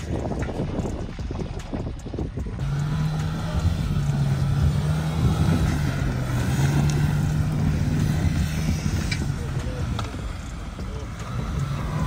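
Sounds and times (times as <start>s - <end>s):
steady low drone: 0.0s - 12.0s
suv engine running: 0.0s - 12.0s.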